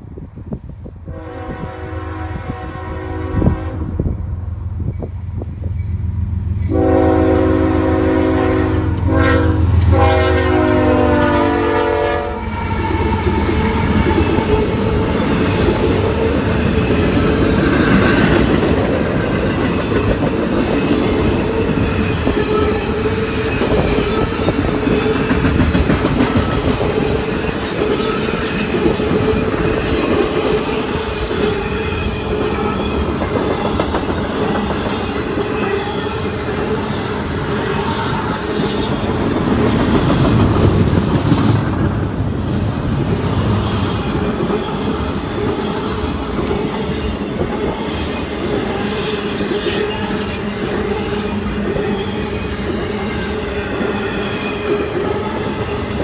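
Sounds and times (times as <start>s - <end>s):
locomotive horn blasts: 1.1s - 4.2s, 6.7s - 13.0s
train wheels clattering over rails: 12.6s - 35.9s.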